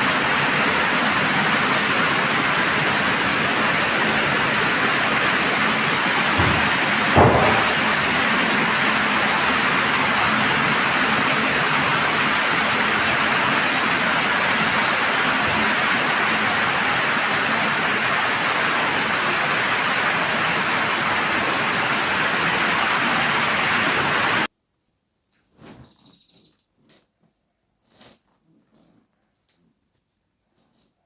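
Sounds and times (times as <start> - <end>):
heavy rain hissing: 0.0 - 24.5.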